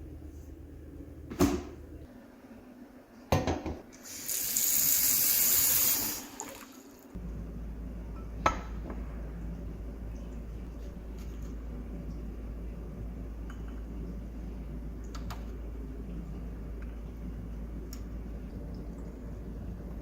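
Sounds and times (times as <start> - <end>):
water tap running: 4.0 - 7.2.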